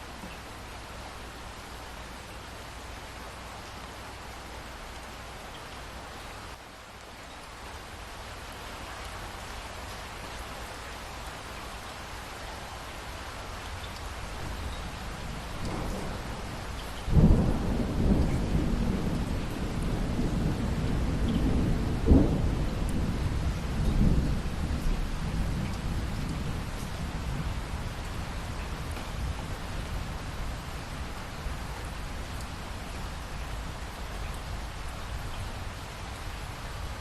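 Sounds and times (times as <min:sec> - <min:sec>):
steady rain: 0:00.0 - 0:37.0
thunder rumbling and cracking: 0:15.2 - 0:30.7.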